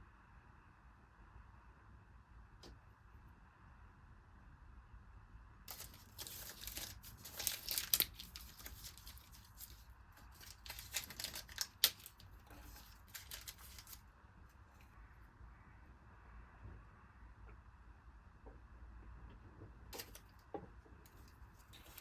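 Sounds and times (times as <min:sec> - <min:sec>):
papery tearing and rustling: 0:05.7 - 0:14.0, 0:20.0 - 0:20.3, 0:21.1 - 0:22.0.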